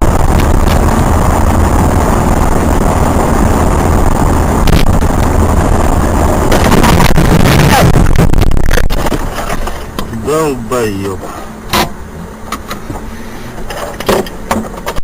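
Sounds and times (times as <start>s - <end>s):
car rumbling on the move: 0.0s - 15.0s
sharp clicks and knocks: 13.6s - 15.0s.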